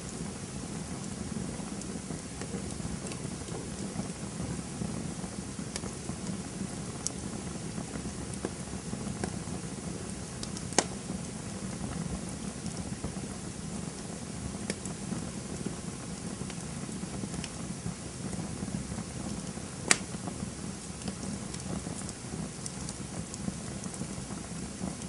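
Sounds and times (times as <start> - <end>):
campfire flames rushing: 0.0 - 25.0
wood crackling: 0.0 - 25.0
sharp wood pops: 10.7 - 10.9, 19.9 - 20.1.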